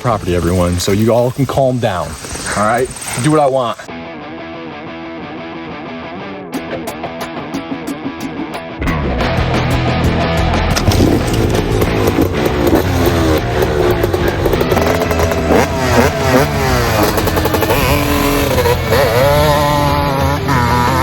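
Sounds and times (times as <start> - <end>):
dirt bike engine revving: 8.9 - 21.0.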